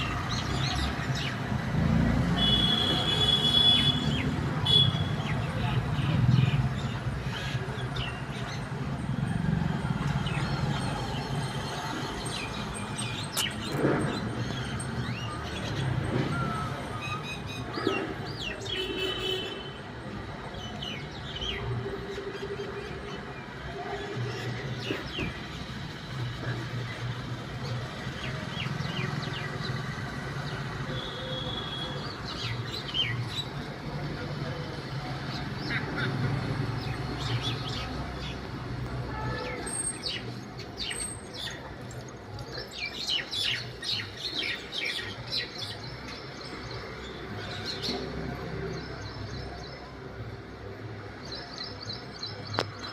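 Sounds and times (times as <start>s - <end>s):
myna birds chirping: 40.0s - 52.9s.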